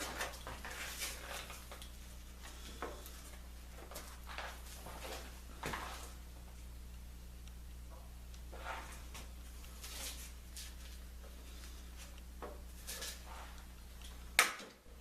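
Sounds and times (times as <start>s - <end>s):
low electrical hum: 0.0s - 15.0s
knocks and scrapes of wood and tools: 2.4s - 6.2s, 8.0s - 11.0s, 12.0s - 13.7s.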